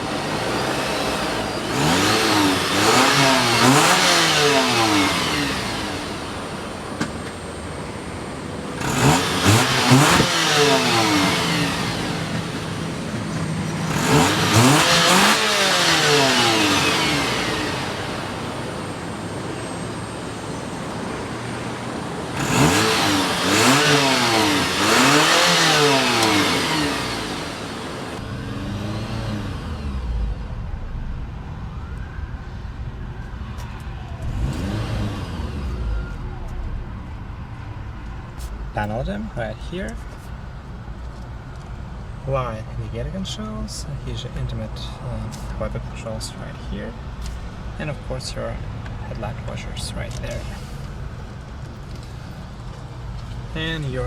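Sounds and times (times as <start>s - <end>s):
car engine revving: 0.0s - 31.2s, 33.5s - 40.7s.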